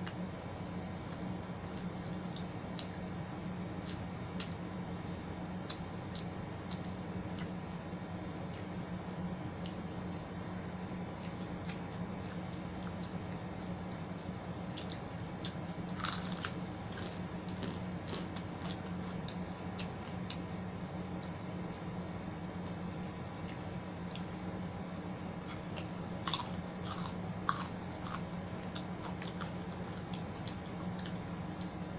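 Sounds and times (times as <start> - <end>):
steady low hum: 0.0 - 31.9
person chewing wetly: 9.6 - 21.8, 23.0 - 24.4, 25.4 - 31.8
crunchy bite: 14.1 - 20.4, 25.4 - 31.7.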